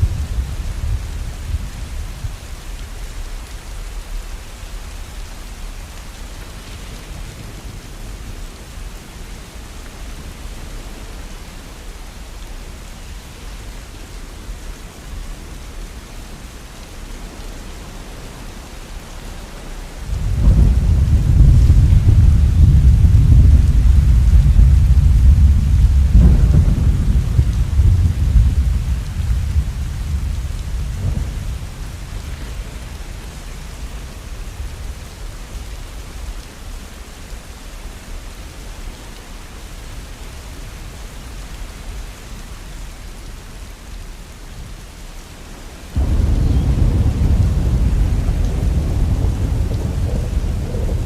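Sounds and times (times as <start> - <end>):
thunder rumbling: 0.0 - 2.4, 20.0 - 35.3, 46.0 - 51.0
steady rain: 0.0 - 51.0.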